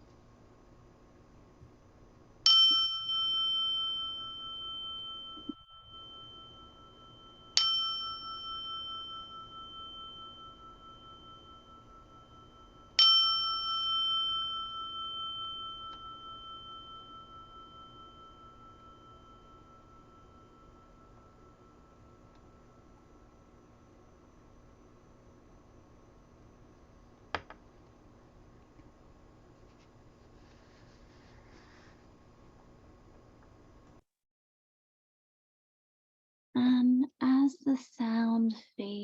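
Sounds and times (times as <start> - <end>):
meditation bell ringing: 2.4 - 25.4.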